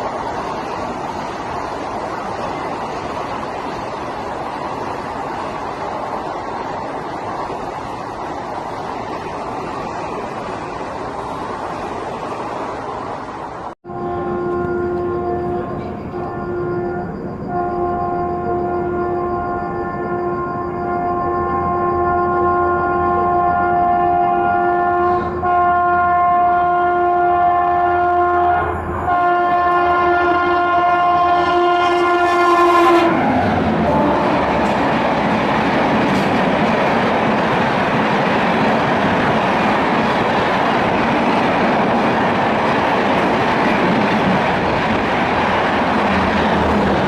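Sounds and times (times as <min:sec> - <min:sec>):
train rushing past on rails: 0:00.0 - 0:47.0
train horn blasts: 0:13.8 - 0:34.8.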